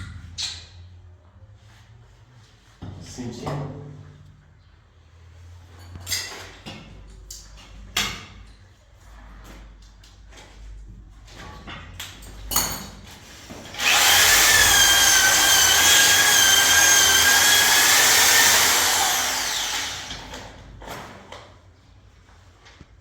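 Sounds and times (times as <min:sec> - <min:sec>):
electric drill whining: 0:13.8 - 0:20.5.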